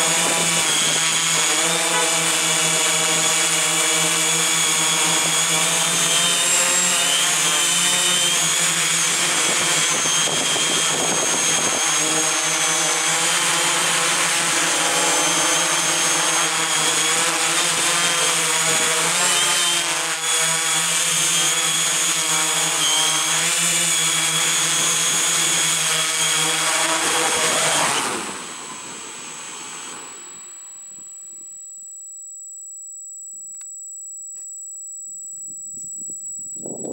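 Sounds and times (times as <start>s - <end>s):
drone motors whining: 0.0s - 32.5s
faint high-pitched tone: 30.2s - 36.9s.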